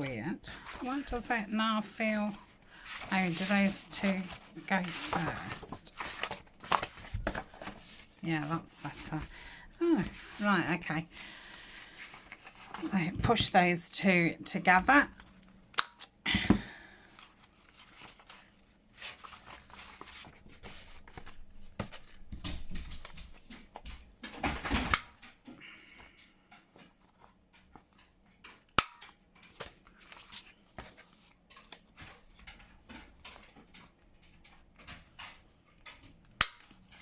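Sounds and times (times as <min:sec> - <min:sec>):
paper rustling: 0:00.0 - 0:13.5, 0:17.0 - 0:23.9.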